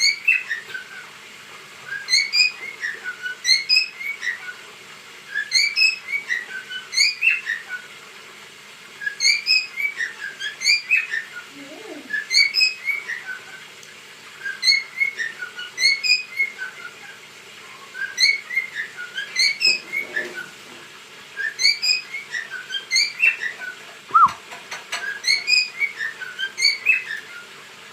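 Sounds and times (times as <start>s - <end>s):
cockatiel whistling: 0.0s - 1.0s, 1.9s - 4.5s, 5.3s - 7.9s, 9.0s - 11.4s, 12.1s - 13.6s, 14.4s - 17.0s, 17.9s - 20.4s, 21.4s - 27.4s.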